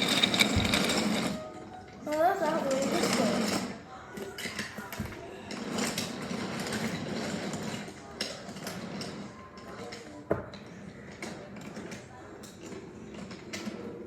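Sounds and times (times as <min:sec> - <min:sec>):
toy train motor whirring: 0:00.0 - 0:01.4, 0:02.3 - 0:03.8
toy train clicking and clatter: 0:00.0 - 0:10.2.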